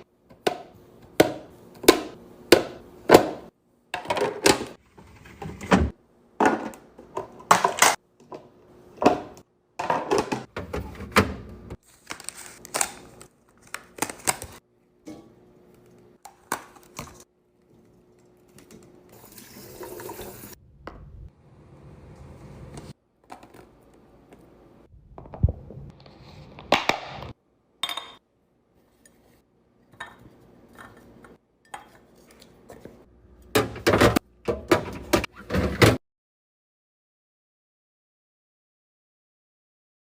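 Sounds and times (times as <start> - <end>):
groceries knocking and clinking: 0.3 - 4.8.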